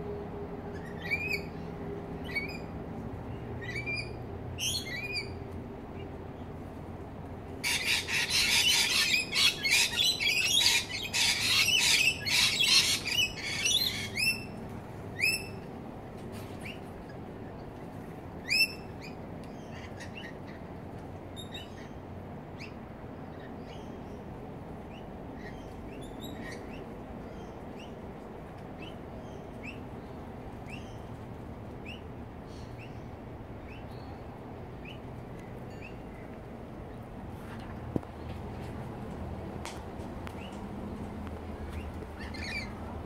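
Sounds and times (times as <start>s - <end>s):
low background hum: 0.0s - 43.0s
birds calling and chirping: 0.7s - 6.5s, 7.6s - 15.7s, 22.6s - 28.0s, 28.6s - 39.0s, 40.2s - 43.0s.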